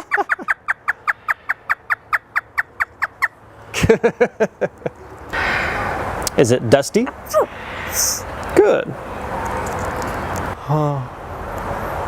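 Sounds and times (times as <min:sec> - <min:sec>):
parrot imitating laughter: 0:00.0 - 0:01.0.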